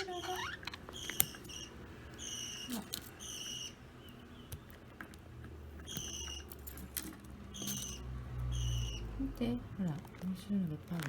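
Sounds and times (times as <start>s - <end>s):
budgerigars chirping: 0.0s - 4.6s, 5.8s - 6.5s, 7.5s - 9.2s
chain toy clicks and rattles: 6.4s - 8.0s.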